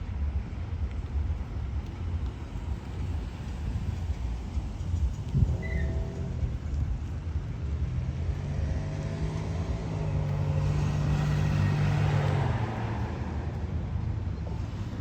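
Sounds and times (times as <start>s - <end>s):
motor vehicle passing by: 4.7s - 15.0s.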